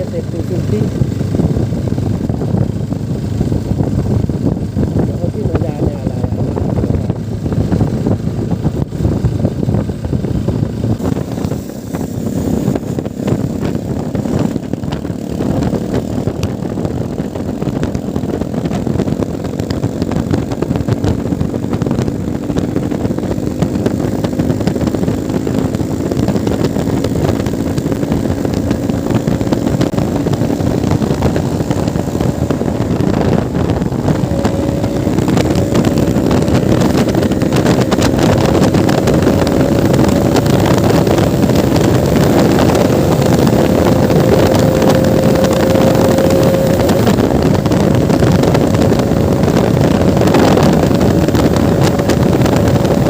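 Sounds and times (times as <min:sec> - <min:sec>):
motorcycle engine running: 0:00.0 - 0:53.0
wind noise on microphone: 0:00.0 - 0:53.0.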